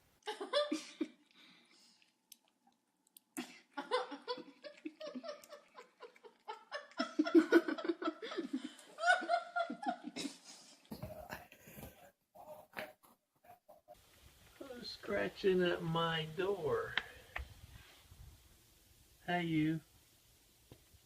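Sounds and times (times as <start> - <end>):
person laughing hard: 3.4 - 10.6.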